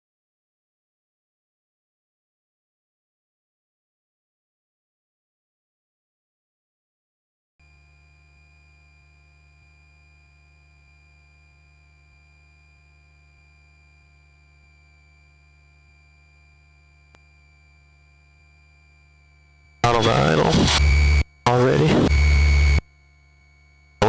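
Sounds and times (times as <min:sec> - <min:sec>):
faint electrical whine and hum: 0:07.6 - 0:24.0.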